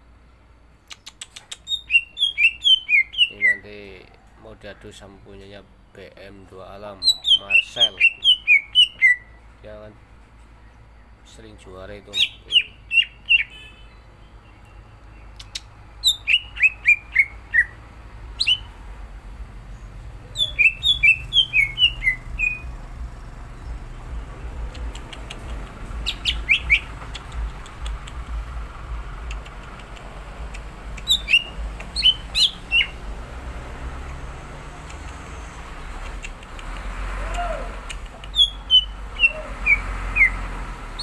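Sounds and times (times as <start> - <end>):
bird singing sharp whistled notes: 1.7 - 3.7, 7.0 - 9.4, 12.1 - 17.8, 18.4 - 18.9, 19.7 - 24.2, 25.2 - 27.0, 31.0 - 33.0, 38.3 - 41.0
steady low hum: 13.9 - 36.6.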